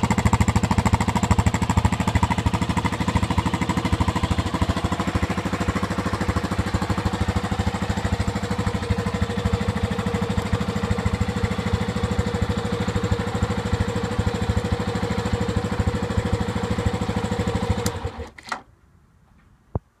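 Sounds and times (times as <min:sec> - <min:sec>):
motorcycle engine idling: 0:00.0 - 0:18.3
click: 0:17.8 - 0:18.6.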